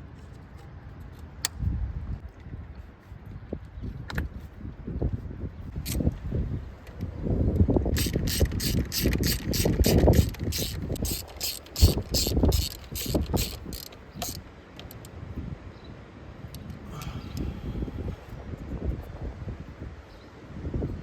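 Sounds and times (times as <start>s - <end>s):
ratchet wrench clicking: 5.8s - 6.2s, 7.9s - 15.1s.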